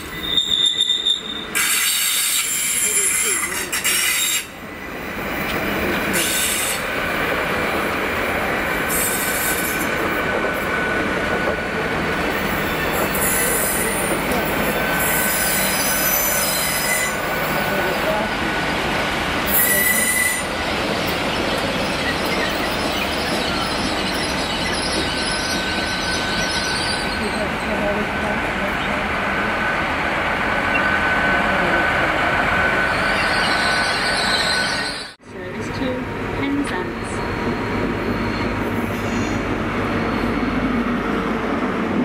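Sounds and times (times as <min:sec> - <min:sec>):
wheel squeal: 0:00.0 - 0:04.5
train wheels rumbling on rail: 0:00.0 - 0:42.0.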